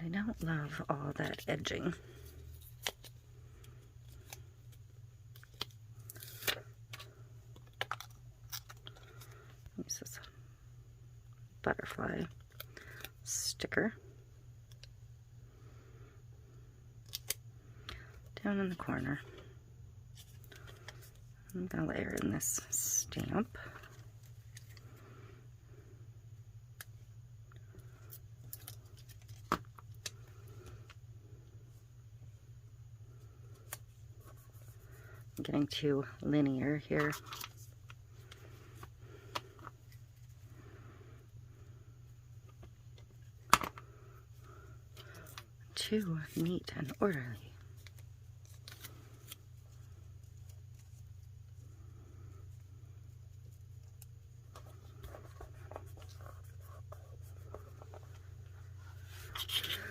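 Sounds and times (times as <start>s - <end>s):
low steady hum: 0.0s - 59.9s
paper rustling: 54.5s - 59.9s.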